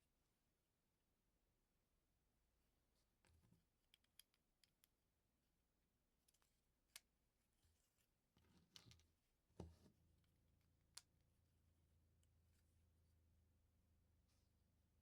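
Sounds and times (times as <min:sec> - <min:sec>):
small plastic clicks and taps: 0:03.3 - 0:05.0.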